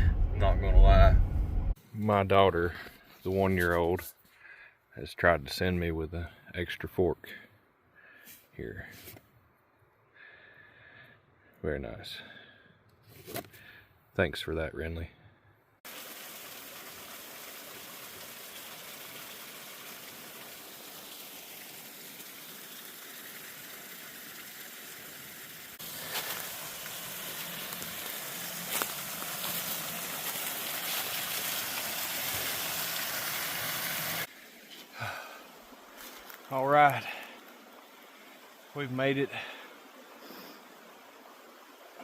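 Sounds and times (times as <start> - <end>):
rushing running water: 15.9 - 42.0.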